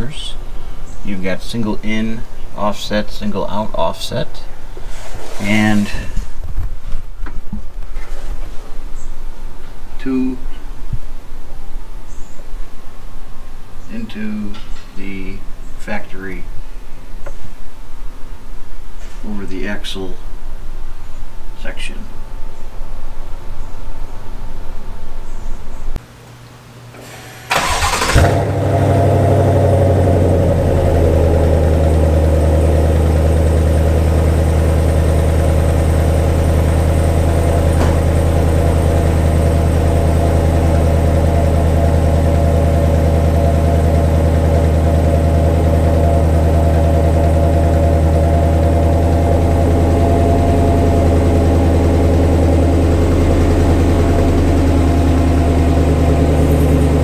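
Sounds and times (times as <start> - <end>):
truck engine idling: 27.1 - 57.0.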